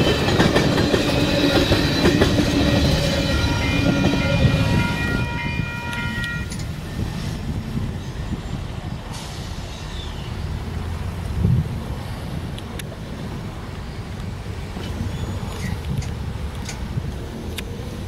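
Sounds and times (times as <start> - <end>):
high steady ringing tones: 0.0 - 7.2
freight train rumbling past: 0.0 - 18.0.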